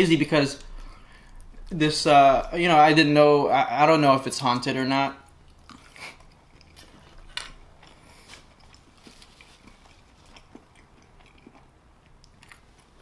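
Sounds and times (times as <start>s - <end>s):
wet chewing mouth clicks: 7.8s - 13.0s.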